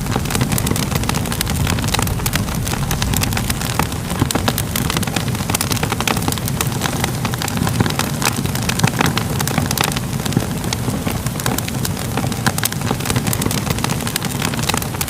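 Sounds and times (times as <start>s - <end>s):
low rumble: 0.0s - 7.4s
fire crackling and popping: 0.0s - 15.0s.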